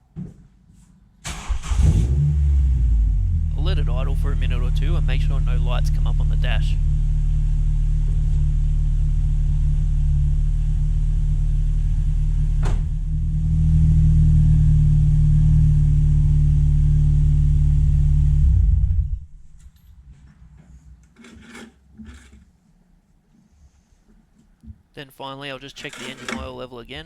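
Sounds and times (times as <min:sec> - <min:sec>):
car engine idling: 0:01.3 - 0:19.3.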